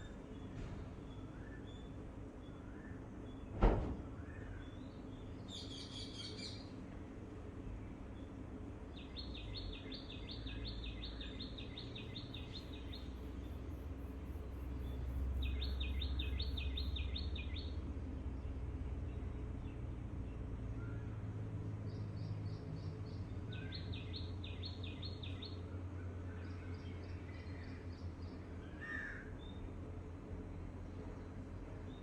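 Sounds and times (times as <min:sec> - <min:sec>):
songbirds chirping and trilling: 0:00.0 - 0:32.0
steady low rumble: 0:12.2 - 0:20.7.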